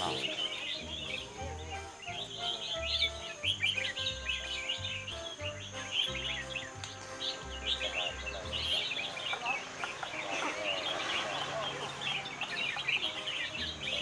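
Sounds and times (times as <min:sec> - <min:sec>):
background music with bass notes: 0:00.0 - 0:14.0
caged songbirds chirping and singing: 0:00.0 - 0:14.0.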